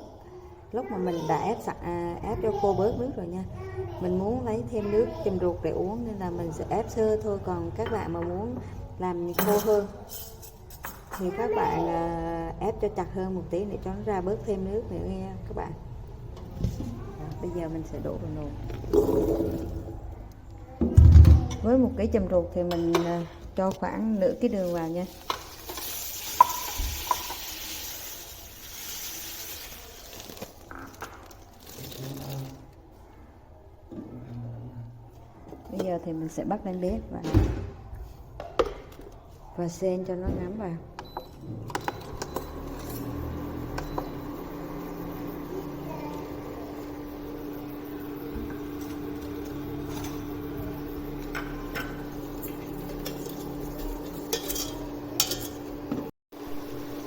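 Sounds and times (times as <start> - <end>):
sugar pouring hiss: 24.7 - 30.7
metal clinks against a pot: 53.0 - 55.7.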